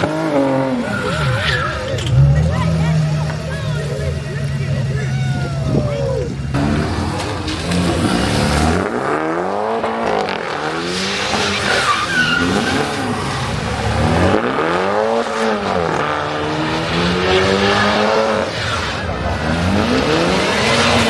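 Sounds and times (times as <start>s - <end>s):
tyre squeal: 0.0s - 8.9s, 10.9s - 13.9s
car engine revving: 0.0s - 21.0s.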